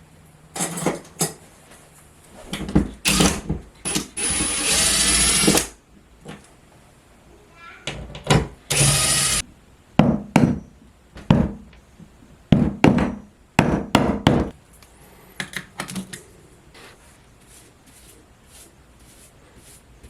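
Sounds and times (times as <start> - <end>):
power tool burst: 3.1 - 5.7, 8.7 - 9.4.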